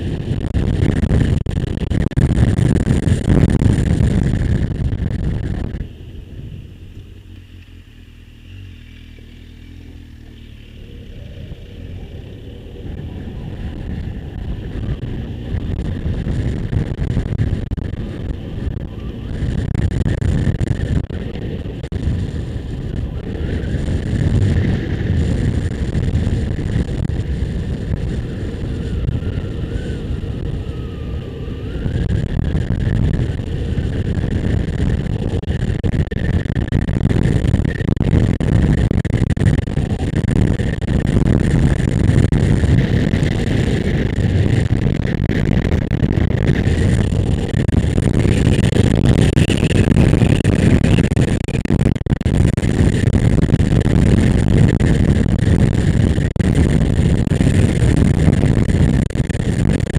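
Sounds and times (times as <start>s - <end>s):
motorcycle engine: 0.0s - 59.9s
wind rush on microphone: 0.0s - 59.9s.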